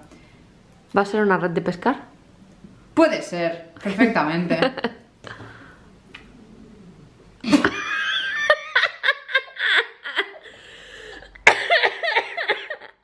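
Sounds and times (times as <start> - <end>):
woman laughing hard: 7.5 - 10.6, 11.3 - 13.0.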